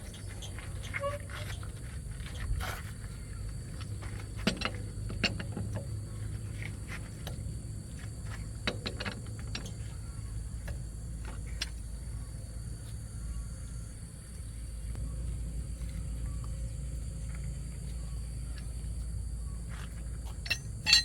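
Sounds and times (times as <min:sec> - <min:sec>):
low steady hum: 0:00.0 - 0:21.0
metallic clinks of hand tools: 0:20.4 - 0:21.0.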